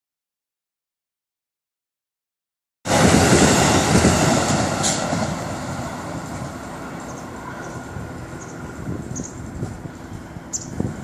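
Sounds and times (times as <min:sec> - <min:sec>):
train rumble and hiss: 0:02.9 - 0:11.0.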